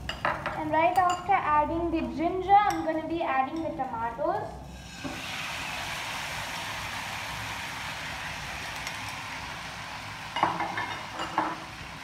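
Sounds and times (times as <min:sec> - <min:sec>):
tomatoes sizzling in oil: 0:04.6 - 0:12.0.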